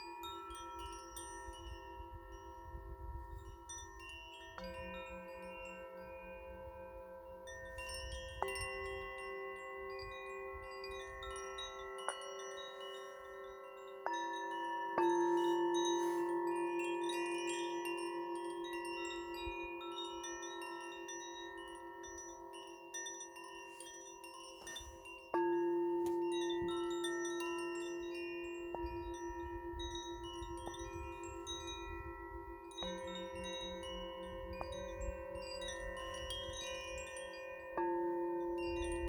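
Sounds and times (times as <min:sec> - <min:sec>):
metal chimes ringing: 0:00.0 - 0:39.0.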